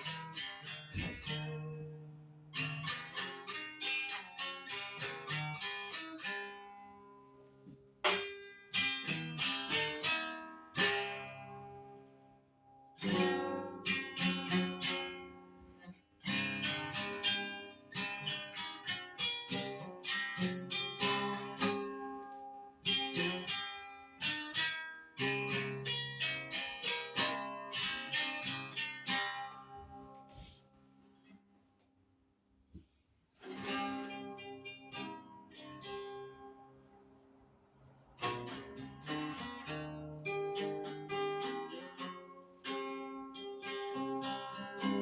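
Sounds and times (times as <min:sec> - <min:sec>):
acoustic guitar chords: 0:00.0 - 0:12.2, 0:33.4 - 0:37.0, 0:38.2 - 0:45.0.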